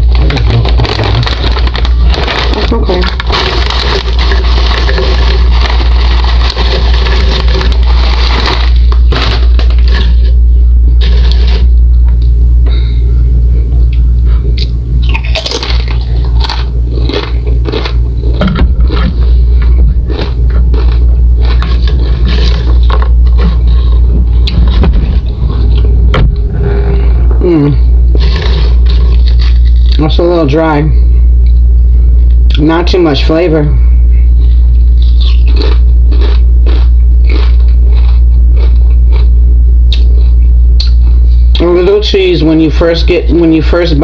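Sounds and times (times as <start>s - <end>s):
chip bag crinkling: 0.0s - 10.4s, 11.0s - 11.7s, 15.1s - 26.0s, 34.5s - 39.2s
chips crunching while chewed: 0.0s - 10.4s, 11.0s - 11.7s, 13.9s - 26.0s, 28.1s - 30.2s, 34.4s - 39.3s, 39.9s - 41.7s
steady low hum: 0.0s - 44.0s.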